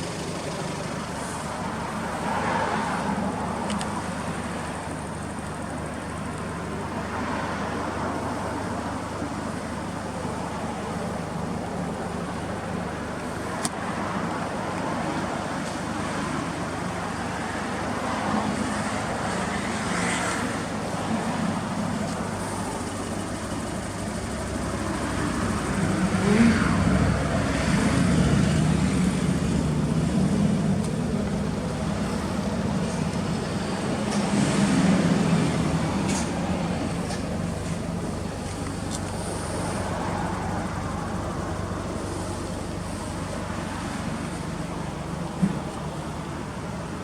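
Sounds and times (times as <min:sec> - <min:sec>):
car engine revving: 0:19.6 - 0:42.4.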